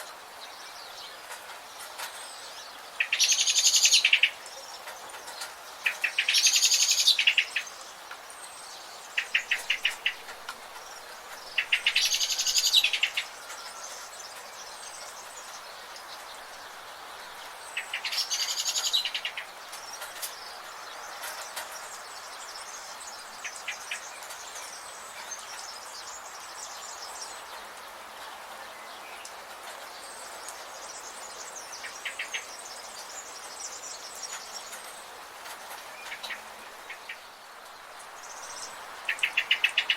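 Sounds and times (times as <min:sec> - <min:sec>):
steady background hiss: 0:00.0 - 0:39.9
songbird rapid trilling song: 0:02.0 - 0:27.6, 0:38.2 - 0:39.9.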